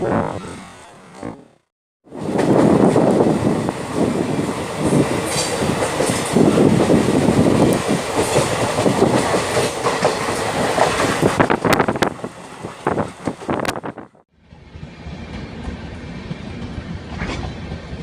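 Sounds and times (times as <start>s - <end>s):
train wheels rumbling on rail: 2.1s - 18.0s
wheels clacking over rail joints: 4.7s - 13.8s.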